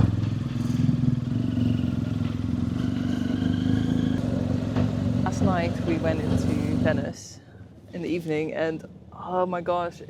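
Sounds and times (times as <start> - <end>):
motorcycle engine running: 0.0 - 7.2.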